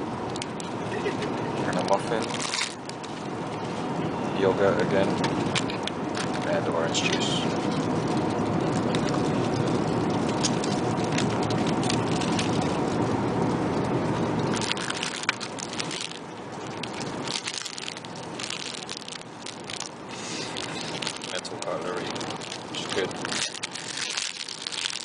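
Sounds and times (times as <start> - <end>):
airplane cabin hum: 0.0 - 25.0
packaging rustling: 1.8 - 3.3, 5.4 - 13.1, 14.5 - 25.0.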